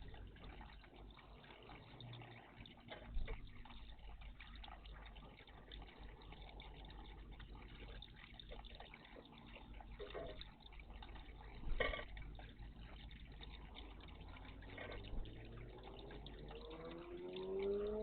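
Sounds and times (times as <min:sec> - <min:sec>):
small irregular ticks: 0:00.0 - 0:18.0
water splashing and dripping: 0:00.0 - 0:18.0.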